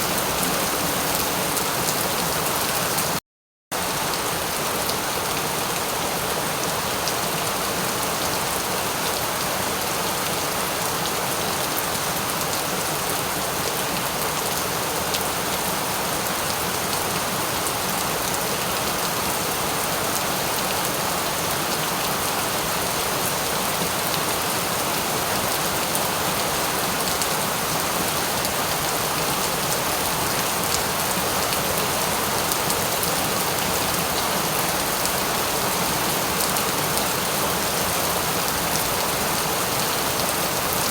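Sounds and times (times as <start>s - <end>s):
rain pattering: 0.0s - 3.2s.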